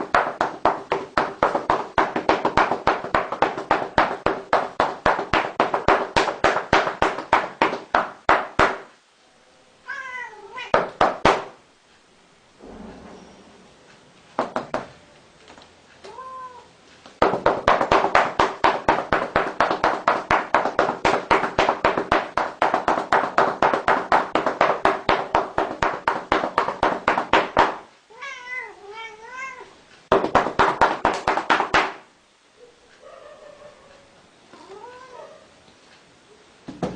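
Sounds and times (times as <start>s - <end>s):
rapid pats: 0.0s - 9.0s, 10.7s - 11.6s, 14.4s - 15.0s, 17.1s - 27.9s, 30.1s - 32.1s
cat meowing: 9.8s - 10.8s, 16.0s - 16.7s, 28.1s - 29.7s, 34.6s - 35.5s.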